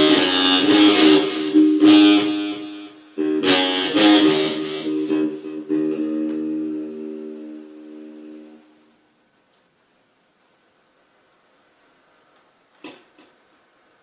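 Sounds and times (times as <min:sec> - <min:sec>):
blues guitar playing: 0:00.0 - 0:08.9.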